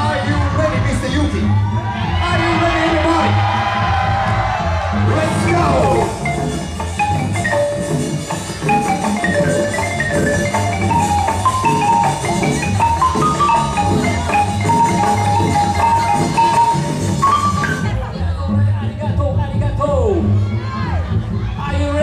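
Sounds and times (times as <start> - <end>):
bass beat: 0.0 - 22.0
bright synth melody: 5.3 - 18.1.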